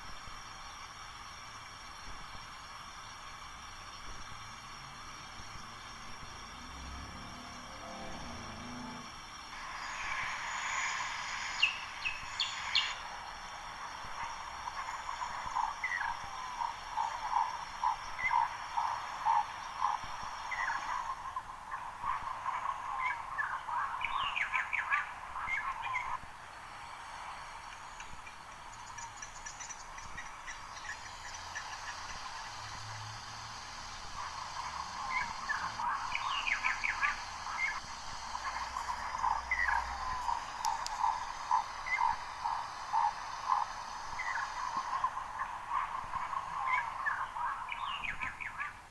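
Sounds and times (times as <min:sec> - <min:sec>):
steady high-pitched hum: 0:00.0 - 0:48.9
steady hiss: 0:00.0 - 0:48.9
birds chirping: 0:09.3 - 0:21.9, 0:22.7 - 0:48.9
short croaking calls: 0:30.6 - 0:47.7.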